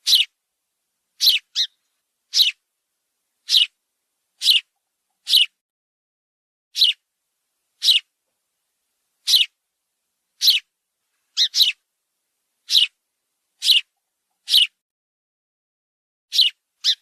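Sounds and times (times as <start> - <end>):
sparrow chirping: 0.0 - 0.4, 1.2 - 2.6, 3.4 - 3.8, 4.4 - 5.6, 6.8 - 7.0, 7.8 - 8.1, 9.2 - 9.6, 10.4 - 10.7, 11.3 - 11.8, 12.6 - 13.0, 13.6 - 14.8, 16.3 - 17.0.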